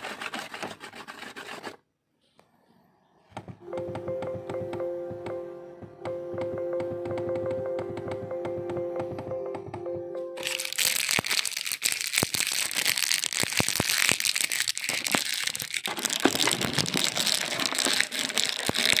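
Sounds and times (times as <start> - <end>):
crinkling handling noise: 10.4 - 19.0.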